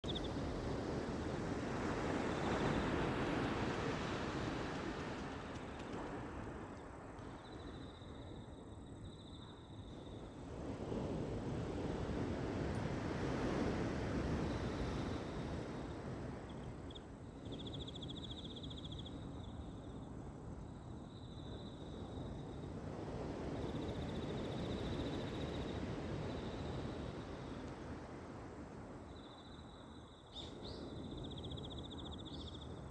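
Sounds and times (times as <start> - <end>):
insects trilling: 0.0 - 0.6, 14.4 - 22.8, 23.4 - 27.6, 29.0 - 32.9.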